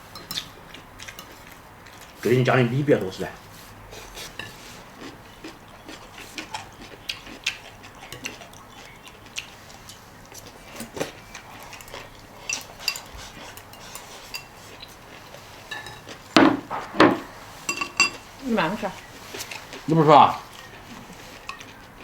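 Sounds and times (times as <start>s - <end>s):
utensils clicking on bowls and plates: 0.1s - 2.1s, 11.6s - 18.3s, 20.5s - 22.0s.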